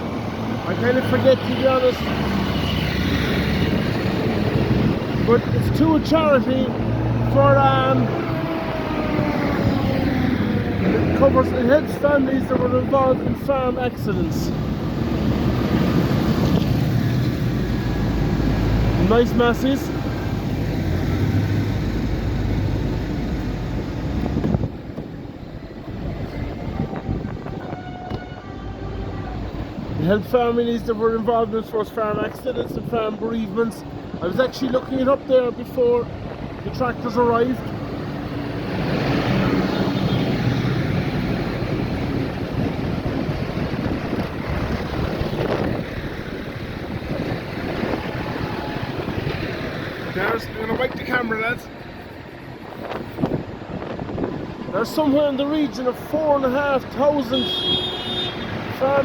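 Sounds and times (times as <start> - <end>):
tractor engines driving past: 0.0 - 59.0
wind noise on microphone: 2.1 - 6.0, 8.0 - 19.0, 19.9 - 30.0, 37.8 - 51.1, 52.5 - 55.4.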